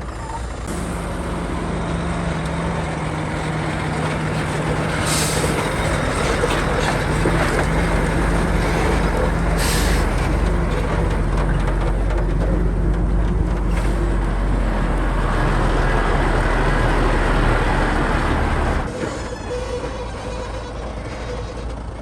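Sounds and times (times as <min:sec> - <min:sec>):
heavy diesel machinery running: 0:00.0 - 0:22.0
air hissing: 0:02.9 - 0:06.0, 0:09.5 - 0:10.3.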